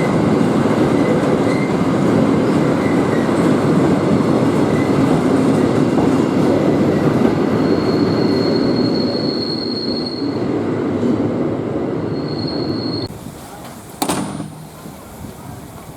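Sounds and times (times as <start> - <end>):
train wheels rumbling on rails: 0.0 - 15.9
high wheel squeal: 6.9 - 10.5, 12.0 - 13.6.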